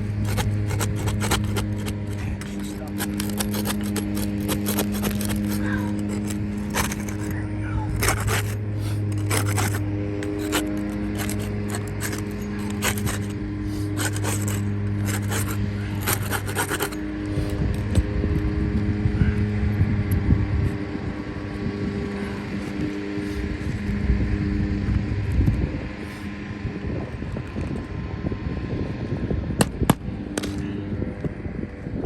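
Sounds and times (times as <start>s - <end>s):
scraping: 0.0s - 17.6s.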